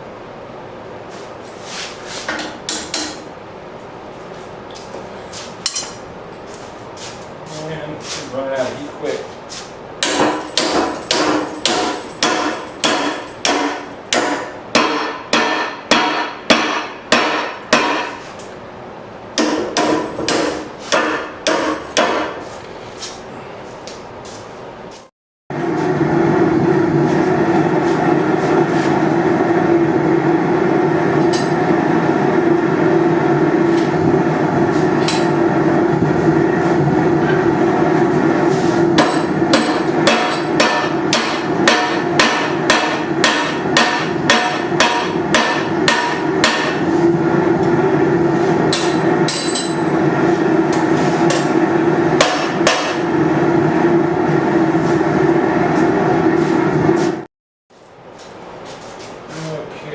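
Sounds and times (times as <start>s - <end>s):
hammer striking steel on anvil: 5.7s - 6.0s, 10.0s - 18.2s, 19.4s - 22.4s, 35.0s - 35.4s, 39.0s - 46.8s, 48.7s - 49.9s, 52.2s - 53.0s
steady hum: 25.5s - 59.9s.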